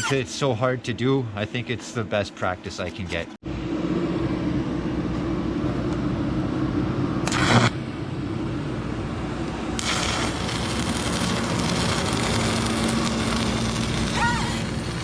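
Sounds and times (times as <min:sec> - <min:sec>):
low hum: 0:03.4 - 0:15.0
welding arc crackling hiss: 0:07.2 - 0:07.8, 0:09.7 - 0:15.0.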